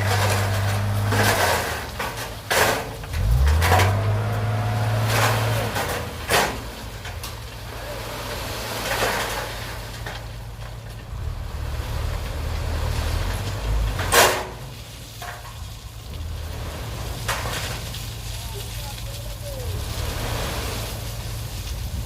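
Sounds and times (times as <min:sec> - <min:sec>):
metallic knocks and scrapes: 0:00.0 - 0:07.6, 0:08.6 - 0:15.8
excavator diesel engine running: 0:00.0 - 0:22.0.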